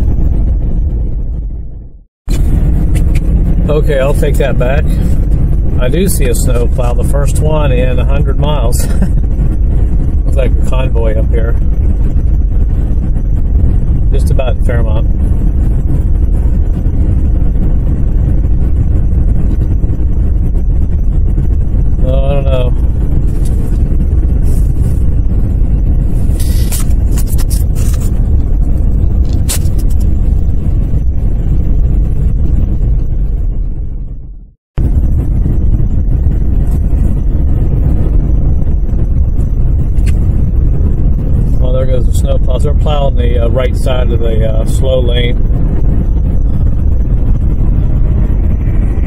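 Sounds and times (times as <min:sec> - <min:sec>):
car driving heard from inside: 0:00.0 - 0:49.0.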